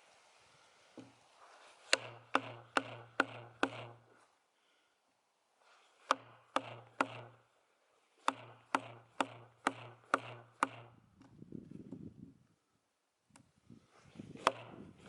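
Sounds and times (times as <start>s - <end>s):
scraping rustle: 0.0s - 2.0s
hammer strikes on steel wedge: 1.9s - 4.1s, 6.0s - 7.4s, 8.2s - 11.0s, 14.4s - 14.7s.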